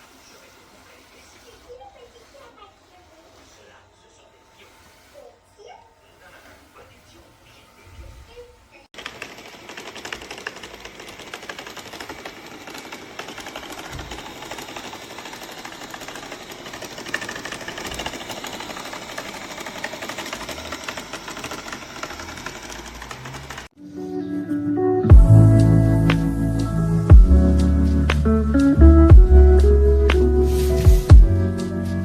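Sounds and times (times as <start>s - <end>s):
robot vacuum rattling: 0.0s - 23.8s.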